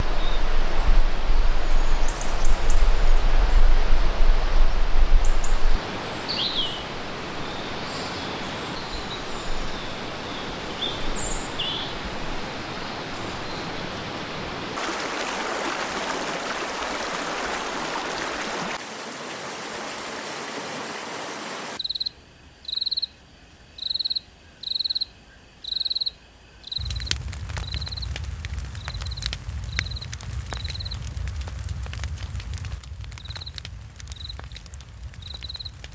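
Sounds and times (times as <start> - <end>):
small birds chirping: 5.2 - 14.5.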